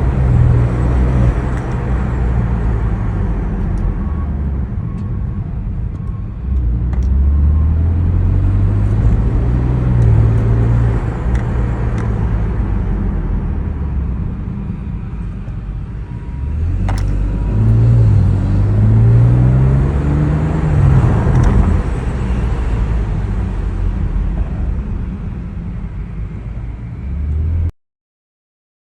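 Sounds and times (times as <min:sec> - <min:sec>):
car engine revving while driving: 0:00.0 - 0:04.5, 0:06.4 - 0:13.9, 0:16.1 - 0:24.1.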